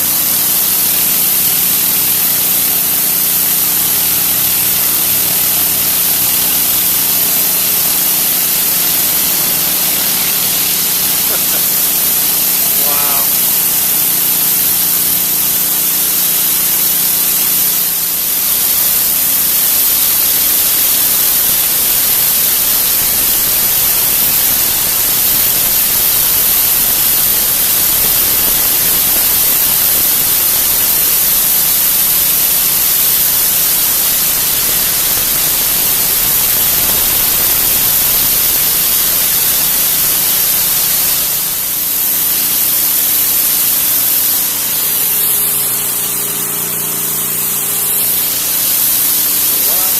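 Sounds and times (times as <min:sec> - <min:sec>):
pressure washer spraying concrete: 0:00.0 - 0:49.9.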